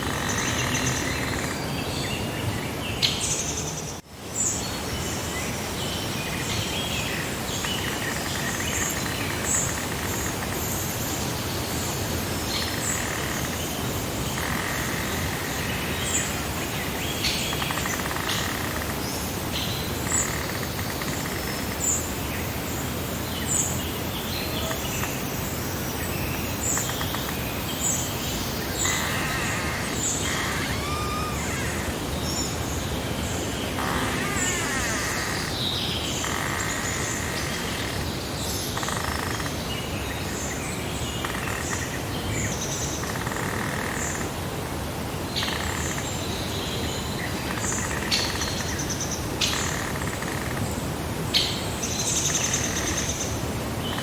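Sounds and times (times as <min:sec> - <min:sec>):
birds chirping and calling: 0:00.0 - 0:02.3, 0:26.2 - 0:38.0
breeze hiss: 0:00.0 - 0:39.0.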